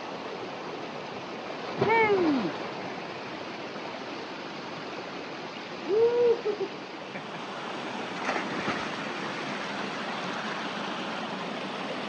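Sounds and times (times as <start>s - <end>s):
creek water running: 0.0s - 12.0s
water splashes: 1.1s - 4.8s, 7.0s - 12.0s
person whooping: 5.9s - 6.7s.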